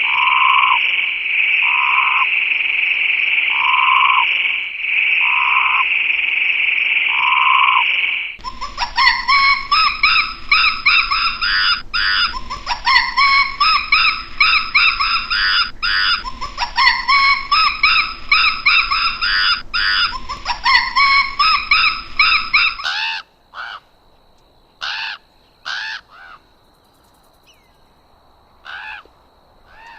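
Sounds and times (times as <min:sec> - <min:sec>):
rapid harsh bird calls: 0:00.0 - 0:23.9, 0:29.7 - 0:29.9
crow cawing: 0:01.6 - 0:02.4, 0:05.2 - 0:05.9, 0:08.4 - 0:23.9, 0:24.8 - 0:26.5, 0:28.6 - 0:29.1, 0:29.7 - 0:29.9.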